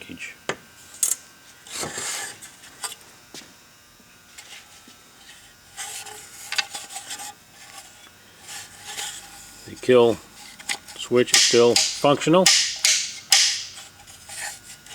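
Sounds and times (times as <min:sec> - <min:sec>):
sharp click: 0:11.4 - 0:13.8.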